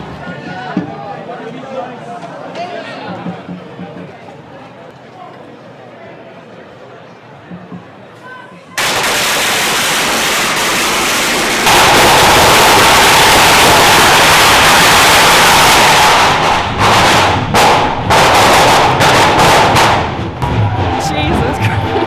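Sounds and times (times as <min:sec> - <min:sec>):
firecrackers crackling and banging: 0:08.8 - 0:22.0.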